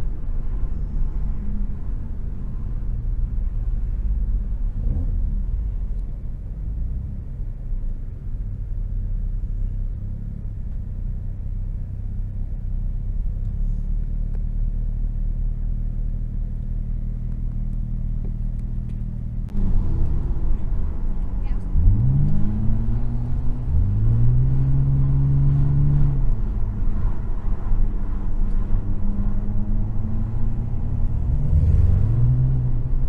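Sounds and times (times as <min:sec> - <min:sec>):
car engine running and revving: 0:00.0 - 0:33.0.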